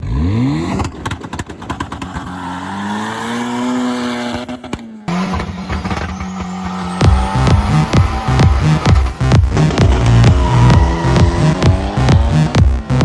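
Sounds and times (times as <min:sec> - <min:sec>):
car engine at high revs: 0:00.0 - 0:13.0
steady engine note: 0:05.0 - 0:13.0.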